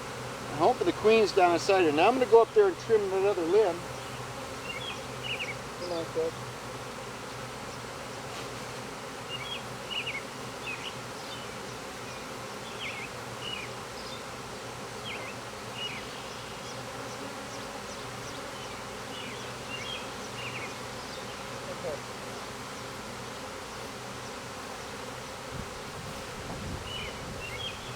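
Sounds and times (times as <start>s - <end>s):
bees buzzing: 0.0s - 27.9s.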